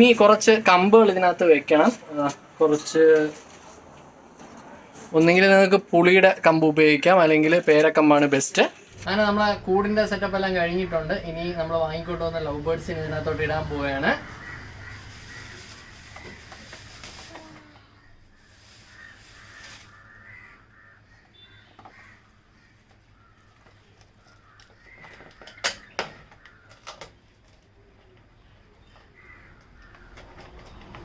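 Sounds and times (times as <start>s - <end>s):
birds giving harsh calls: 13.7s - 27.4s, 28.4s - 31.0s.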